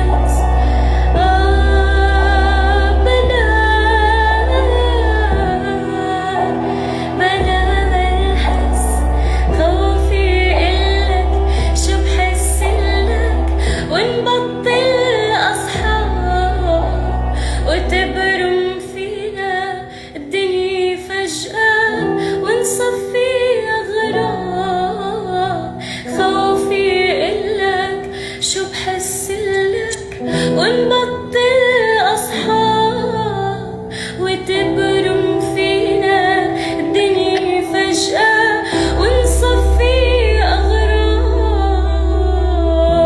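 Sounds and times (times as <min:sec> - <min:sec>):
instrumental backing with bass: 0:00.0 - 0:18.7
woman singing: 0:00.0 - 0:43.0.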